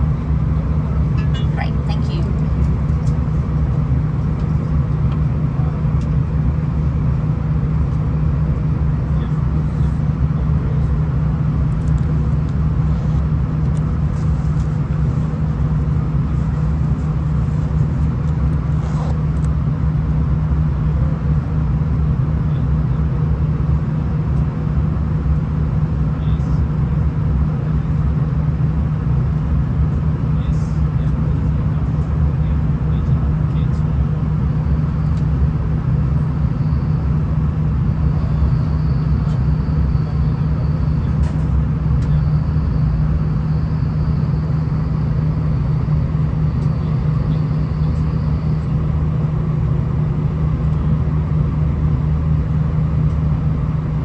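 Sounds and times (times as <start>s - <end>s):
train engine and wheels rumbling: 0.0s - 54.0s.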